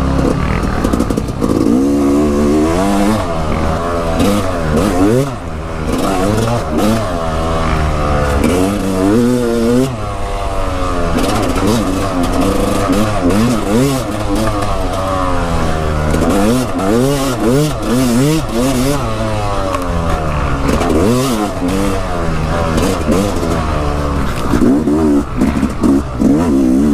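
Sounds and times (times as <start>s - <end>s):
dirt bike engine revving: 0.0s - 26.9s.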